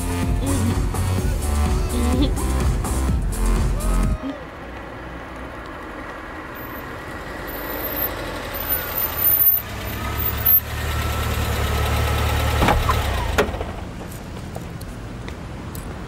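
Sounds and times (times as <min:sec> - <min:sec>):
car engine running: 0:00.0 - 0:14.3
engine cutting off with click: 0:04.7 - 0:13.8.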